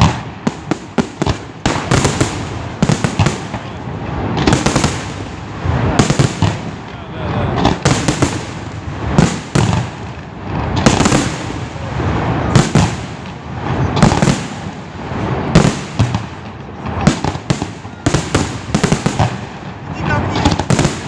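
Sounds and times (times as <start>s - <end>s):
firework shells bursting: 0.0s - 3.8s, 17.0s - 19.6s
rumbling and crackling: 0.0s - 21.0s.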